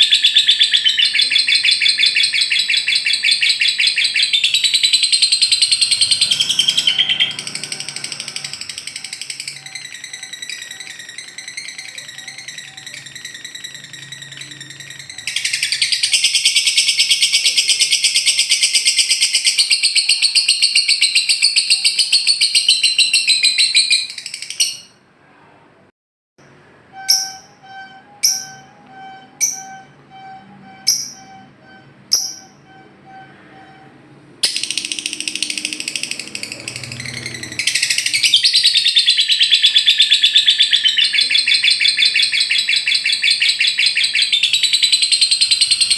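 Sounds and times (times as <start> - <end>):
lovebird chattering trills: 0.0 - 24.9, 34.4 - 45.9
bird sharp chirps: 0.0 - 25.0, 26.9 - 45.9.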